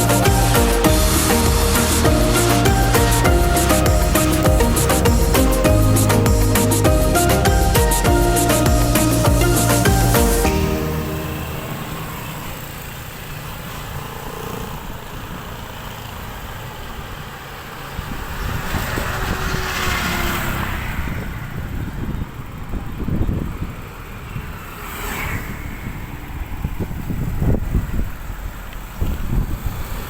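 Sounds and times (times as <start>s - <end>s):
vehicles passing: 0.0s - 30.0s
wind buffeting microphone: 18.0s - 24.6s, 25.5s - 30.0s.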